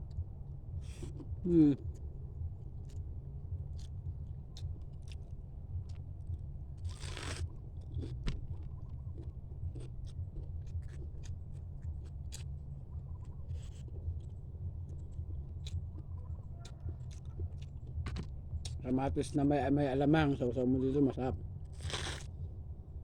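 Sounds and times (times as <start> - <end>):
chewing crunches and mouth noises: 3.6 - 19.2, 21.7 - 22.6.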